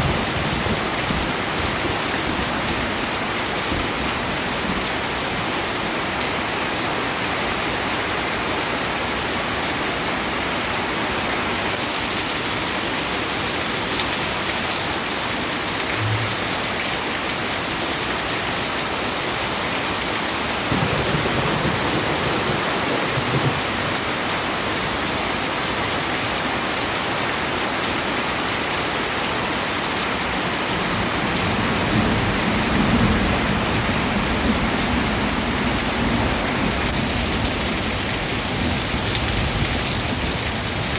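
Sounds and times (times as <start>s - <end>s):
heavy rain falling: 0.0s - 40.9s
low thunder rumbling: 20.7s - 24.4s.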